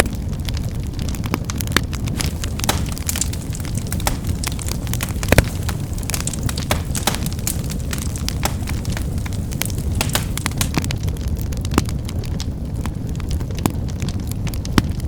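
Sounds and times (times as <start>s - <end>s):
low rumble of flames: 0.1s - 15.0s
wood fire crackling: 0.4s - 15.0s
fire pops and snaps: 1.0s - 12.5s.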